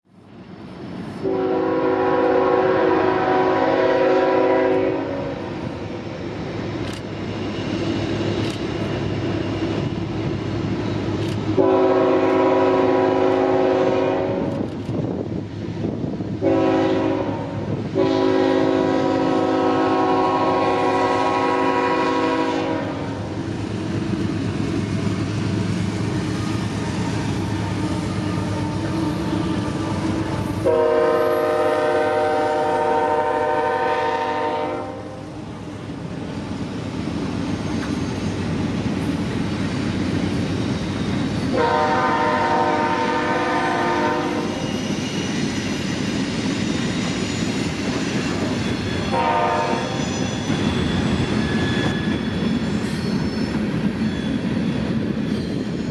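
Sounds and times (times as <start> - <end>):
train air horn blasts: 1.2 - 5.6, 11.5 - 14.7, 16.4 - 23.4, 27.0 - 35.5, 41.5 - 44.7, 49.0 - 50.6.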